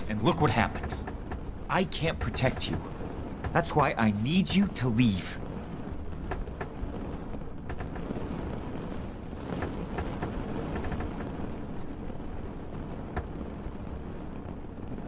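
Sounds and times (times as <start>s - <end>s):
sharp drips ticking: 0.0s - 11.7s
deep rumble: 0.0s - 15.0s
steady rain: 0.0s - 15.0s.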